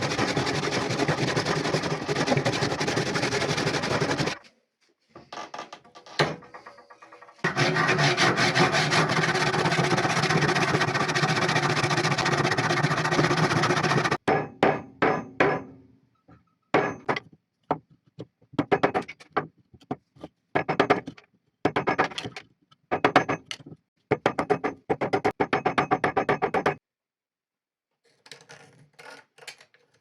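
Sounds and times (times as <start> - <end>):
rasp filing wood: 0.0 - 4.4, 7.4 - 14.2
hammer strikes: 14.2 - 15.8, 16.8 - 17.3.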